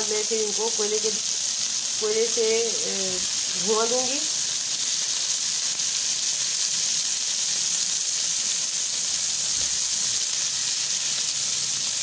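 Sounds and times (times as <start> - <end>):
kebabs sizzling in hot oil: 0.0 - 12.0.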